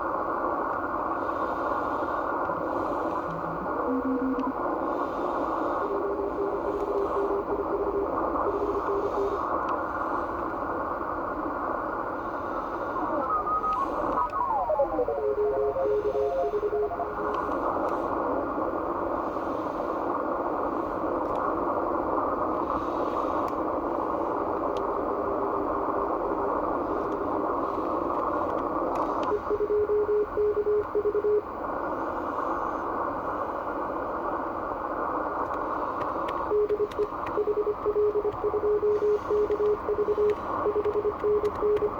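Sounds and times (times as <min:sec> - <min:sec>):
radio band hiss: 0:00.0 - 0:41.9
morse code tone: 0:03.3 - 0:04.6, 0:13.2 - 0:17.5, 0:36.5 - 0:41.9.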